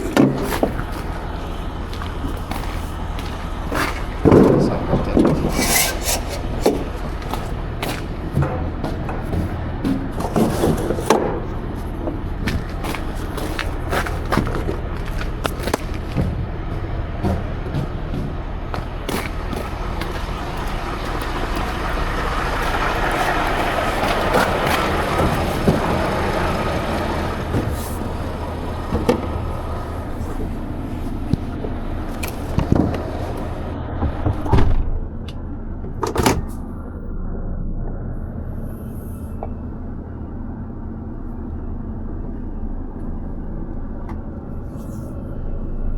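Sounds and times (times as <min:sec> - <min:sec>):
clunks and knocks: 0:00.0 - 0:36.7
heavy truck engine humming: 0:00.0 - 0:45.9.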